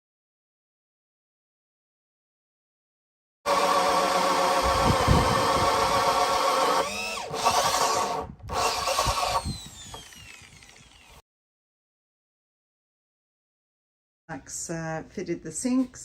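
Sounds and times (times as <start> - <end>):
power drill motor whining: 3.5 - 11.2.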